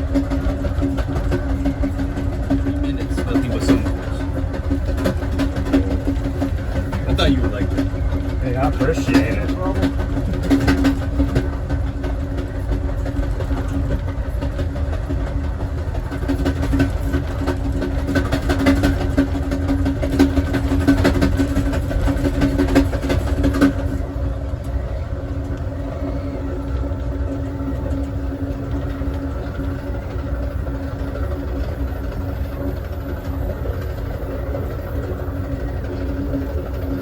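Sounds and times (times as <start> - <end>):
rapid clicking and rattling: 0.0 - 37.0
train rumbling on track: 0.0 - 37.0.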